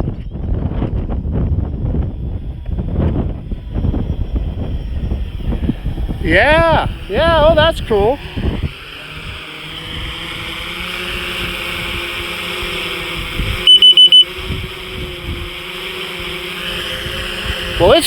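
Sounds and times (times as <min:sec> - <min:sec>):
wind noise: 0:00.0 - 0:18.0
high electronic beeps: 0:13.7 - 0:14.3.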